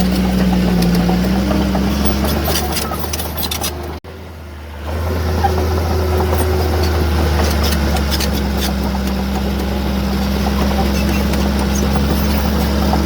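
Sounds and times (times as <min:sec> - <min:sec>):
metallic clatter: 0:00.0 - 0:04.0
heavy diesel engine running: 0:00.0 - 0:13.0.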